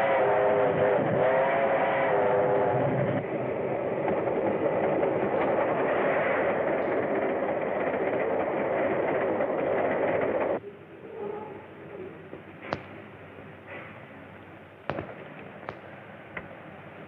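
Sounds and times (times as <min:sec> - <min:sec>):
steam train rumbling: 0:00.0 - 0:10.6.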